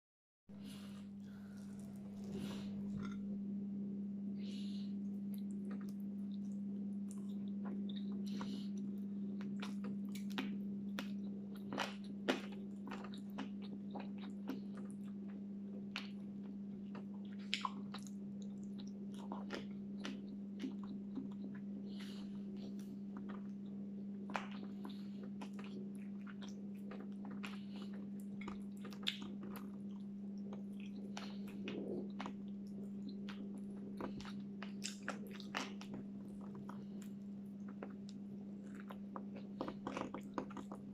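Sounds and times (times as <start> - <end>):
steady low hum: 0.5 - 40.9
person chewing and biting: 16.9 - 40.8.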